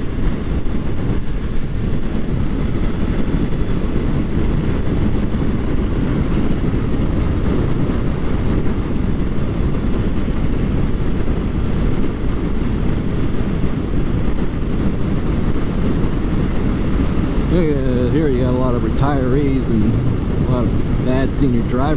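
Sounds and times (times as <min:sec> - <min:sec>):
motorcycle engine and wind rush: 0:00.0 - 0:21.9
thin high whine: 0:05.8 - 0:21.9.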